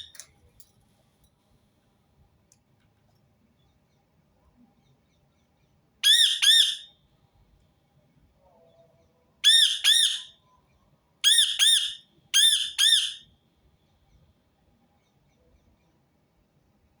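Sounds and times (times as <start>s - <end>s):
parakeet squawking: 6.0s - 6.9s, 9.4s - 10.4s, 11.2s - 13.3s.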